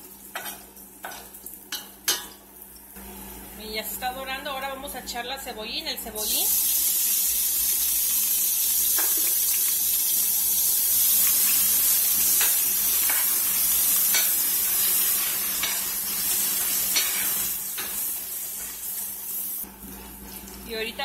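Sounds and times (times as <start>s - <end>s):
food sizzling in hot oil: 0.0s - 3.0s, 6.1s - 21.0s
spoon scraping a pan: 12.2s - 18.8s.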